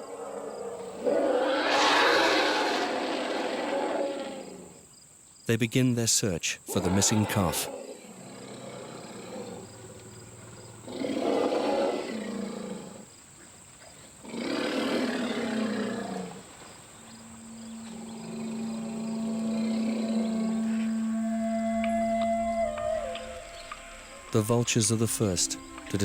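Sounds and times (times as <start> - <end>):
deep animal roars: 0.0 - 4.6, 17.1 - 24.4.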